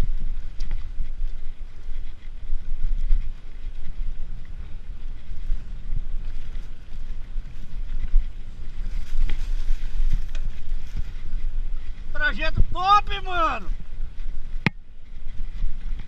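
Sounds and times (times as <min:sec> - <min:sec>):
bike rolling on dirt trail: 0:00.0 - 0:16.0
wind buffeting microphone: 0:00.0 - 0:16.0.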